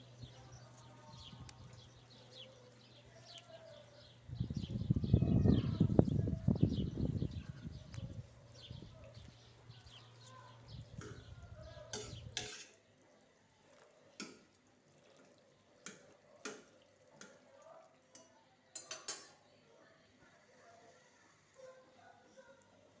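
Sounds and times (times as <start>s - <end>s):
water dripping: 9.0s - 19.3s
utensils clinking against pot: 11.9s - 12.8s, 18.1s - 19.4s.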